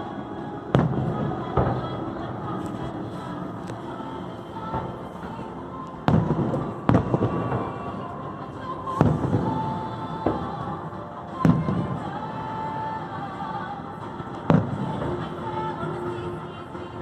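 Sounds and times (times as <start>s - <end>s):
fireworks booming: 0.7s - 2.7s, 6.0s - 10.8s.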